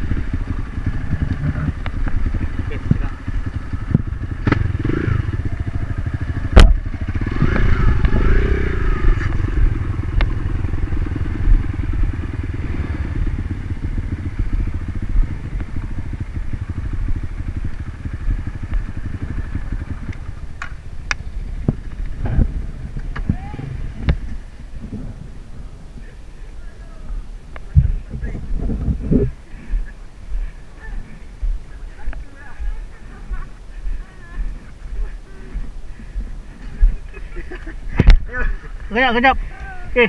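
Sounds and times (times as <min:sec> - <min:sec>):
dirt bike engine revving: 0:00.0 - 0:25.6.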